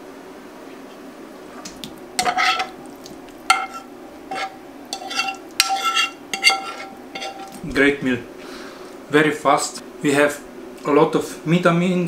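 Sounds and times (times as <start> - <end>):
fork scraping a frying pan: 2.2 - 2.8, 3.4 - 7.6.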